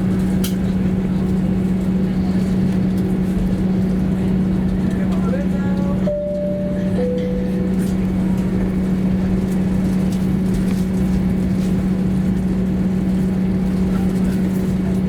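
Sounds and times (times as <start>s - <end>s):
airplane cabin hum: 0.0s - 15.0s
cabin chime tone: 6.1s - 8.2s.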